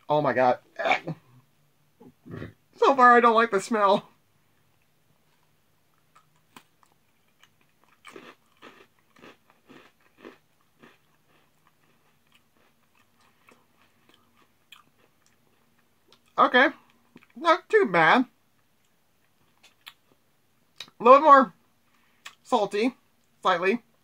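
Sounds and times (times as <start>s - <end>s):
cracker crunching: 4.7s - 17.4s.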